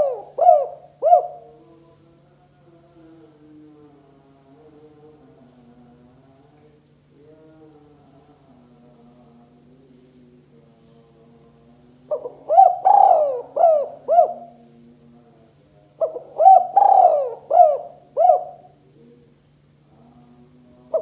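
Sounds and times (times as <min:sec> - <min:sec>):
dove cooing: 0:00.0 - 0:01.6, 0:12.1 - 0:14.7, 0:16.0 - 0:19.0
faint steady hum: 0:00.0 - 0:21.0.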